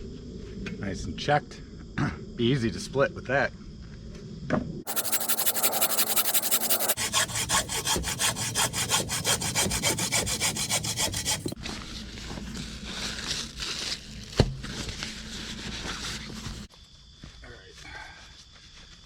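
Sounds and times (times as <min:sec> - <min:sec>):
hand saw cutting wood: 0:04.9 - 0:11.6.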